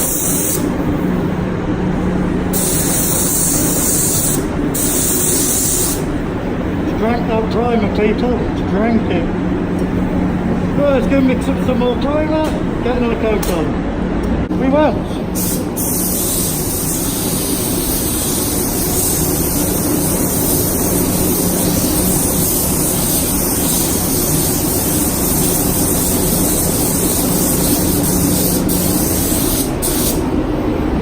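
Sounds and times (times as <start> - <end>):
spray gun hissing: 0.0 - 1.3, 2.0 - 6.4, 15.0 - 30.4.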